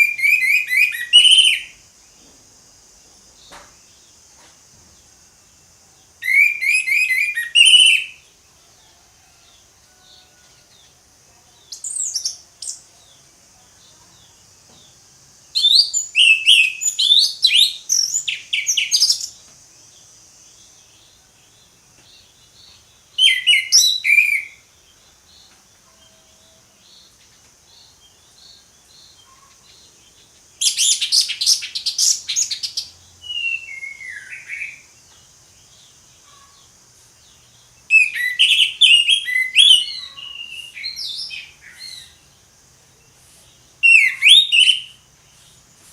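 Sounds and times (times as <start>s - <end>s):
thrush whistled song: 0.0s - 1.8s, 6.2s - 8.2s, 15.6s - 19.3s, 23.2s - 24.6s, 30.6s - 34.9s, 37.9s - 42.1s, 43.8s - 45.1s.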